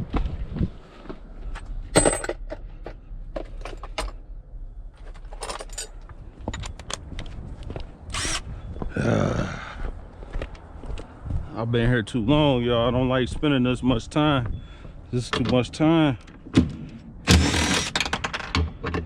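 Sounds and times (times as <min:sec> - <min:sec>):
metal parts clinking: 0:05.1 - 0:07.0.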